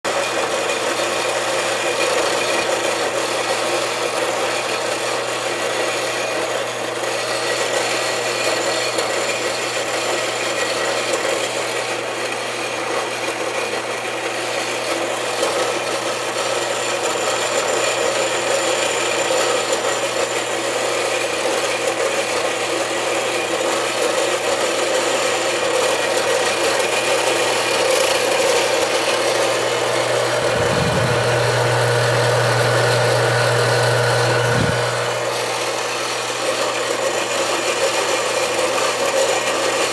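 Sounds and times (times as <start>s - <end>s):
saw cutting metal tube: 0.1s - 39.9s
low hum: 29.9s - 35.4s.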